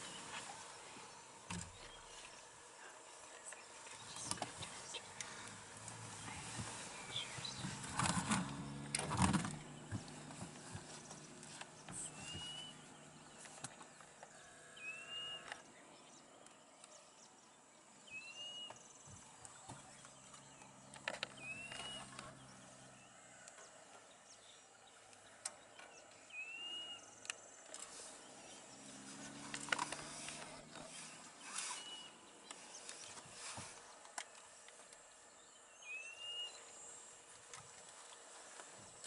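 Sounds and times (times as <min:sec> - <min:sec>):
bird whistling: 0:12.0 - 0:12.8, 0:21.4 - 0:22.1, 0:26.3 - 0:27.1.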